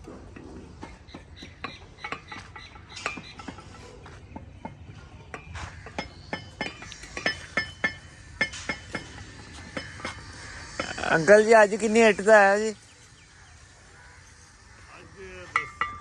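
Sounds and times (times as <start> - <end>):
metal hand tools clinking: 15.4 - 16.0.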